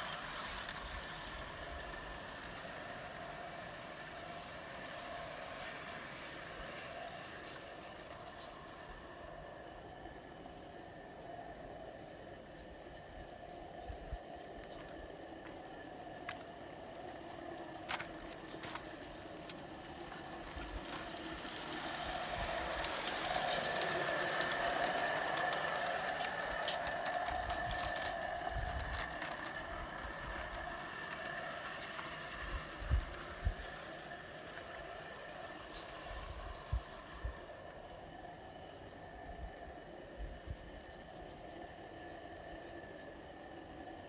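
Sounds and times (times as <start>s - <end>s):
model steam engine whine: 0.0s - 44.0s.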